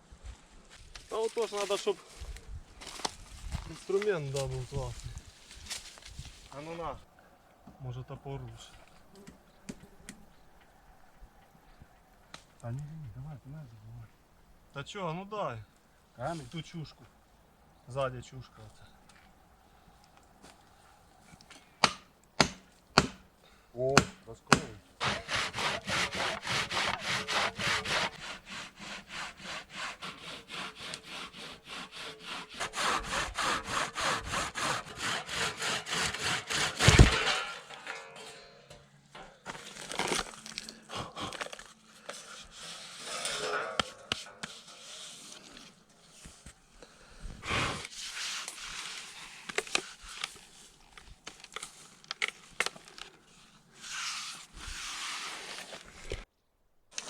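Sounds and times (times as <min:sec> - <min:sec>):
loud sharp wood crack: 0:21.8 - 0:23.3, 0:35.9 - 0:37.8, 0:39.4 - 0:41.8
wood scraping and knocking: 0:24.0 - 0:28.3, 0:35.1 - 0:40.4
hand saw cutting wood: 0:24.0 - 0:40.3, 0:42.0 - 0:45.8.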